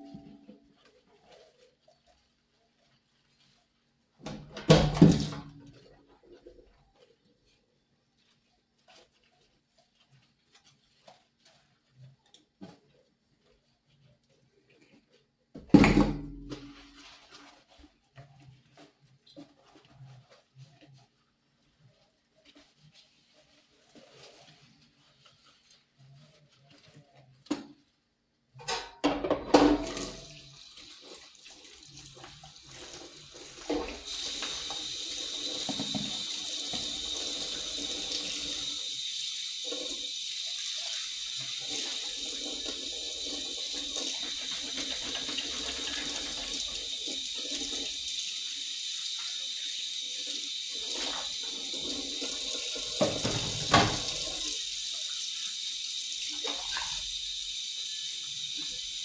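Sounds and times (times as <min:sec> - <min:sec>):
tap running into a sink: 0:04.2 - 0:05.6, 0:28.8 - 0:31.2, 0:31.9 - 0:59.0.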